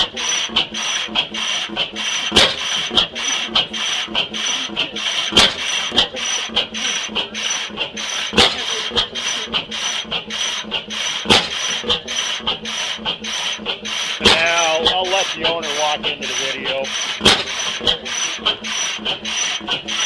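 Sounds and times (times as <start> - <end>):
old engine mechanical clatter: 0.0 - 20.0
sharp engine bang: 14.2 - 16.2.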